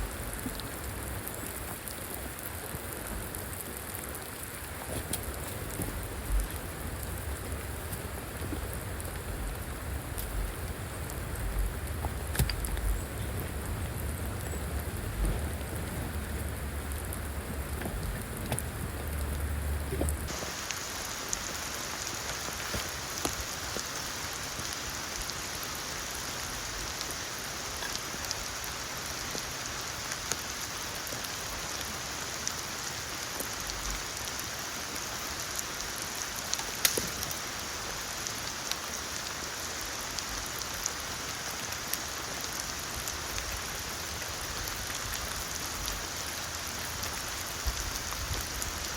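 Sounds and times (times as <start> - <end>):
steady rain hiss: 0.0 - 48.9
low rumble: 5.6 - 20.3.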